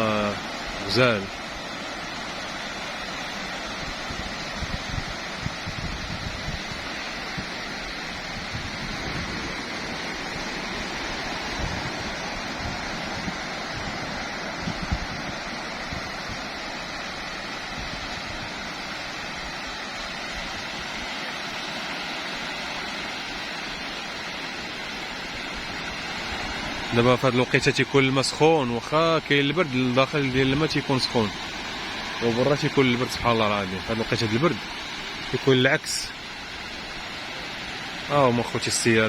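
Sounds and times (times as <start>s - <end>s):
waves breaking on a beach: 0.0s - 39.0s
wind bumps on microphone: 3.7s - 18.7s.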